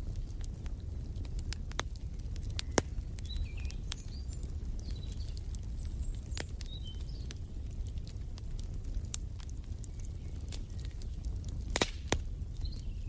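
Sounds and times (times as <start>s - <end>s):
wood fire crackling and popping: 0.0s - 13.0s
faint bird chirps: 2.5s - 7.4s.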